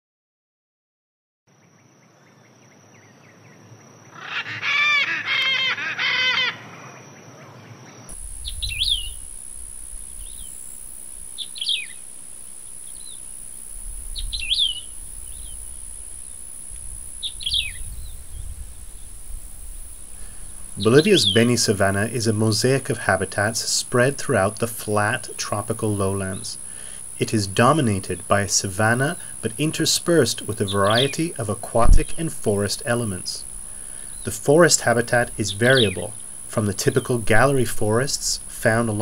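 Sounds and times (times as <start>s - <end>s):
high insect drone: 1.7s - 39.0s
harsh bird calls: 4.1s - 9.2s, 11.4s - 12.0s, 14.2s - 15.6s, 17.2s - 18.5s, 20.2s - 23.5s, 24.4s - 39.0s
low wind rumble: 8.1s - 22.6s
small bird sweeping calls: 8.2s - 13.5s, 14.1s - 21.5s.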